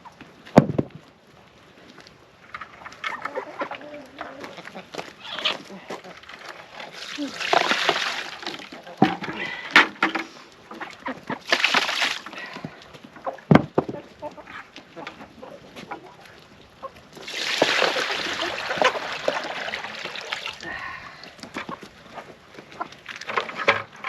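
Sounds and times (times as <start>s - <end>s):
chickens clucking: 2.9s - 6.5s, 10.2s - 11.5s, 12.6s - 17.1s, 17.8s - 23.0s.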